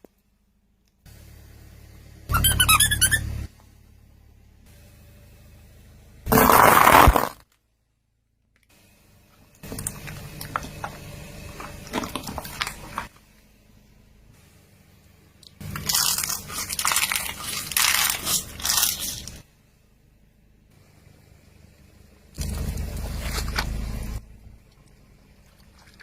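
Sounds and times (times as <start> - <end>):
tyre crunching brittle objects: 6.3 - 7.4, 9.7 - 13.1, 15.6 - 19.4.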